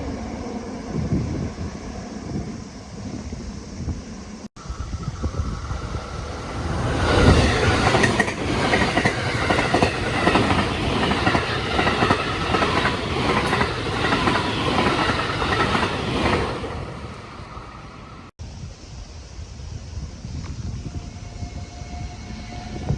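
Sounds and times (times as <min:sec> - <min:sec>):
electric train wheels clacking: 0:04.6 - 0:18.3.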